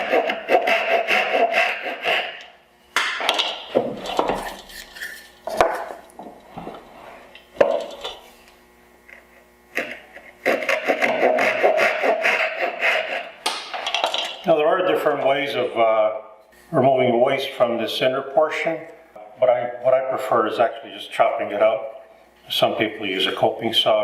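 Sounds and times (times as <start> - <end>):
hand saw cutting wood: 0.0 - 2.5, 9.8 - 13.5.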